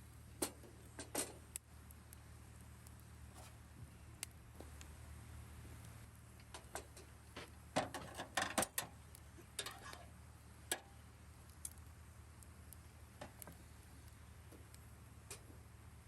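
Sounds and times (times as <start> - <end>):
sharp clicks and crackles: 5.8 - 15.6.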